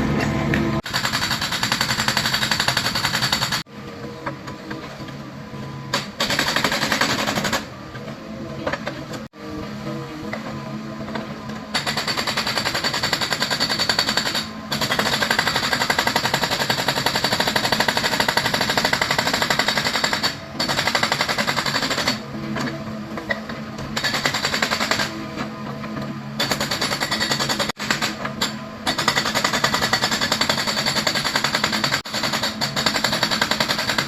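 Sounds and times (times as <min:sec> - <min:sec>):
excavator engine running: 0:00.0 - 0:16.0
hydraulic breaker hammering rock: 0:11.7 - 0:22.2, 0:24.0 - 0:25.3, 0:26.4 - 0:34.0.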